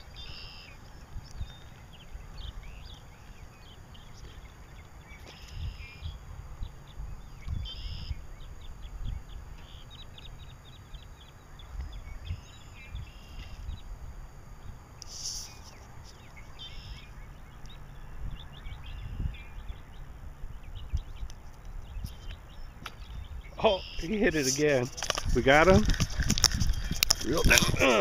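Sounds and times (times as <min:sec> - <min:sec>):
songbirds chirping: 0:00.0 - 0:28.0
wind rumble on microphone: 0:00.0 - 0:28.0.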